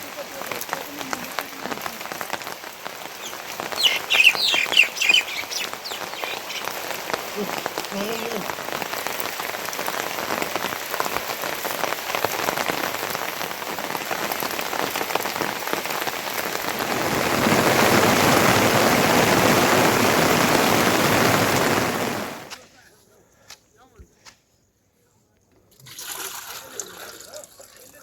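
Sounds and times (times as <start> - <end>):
heavy rain falling: 0.0 - 22.6.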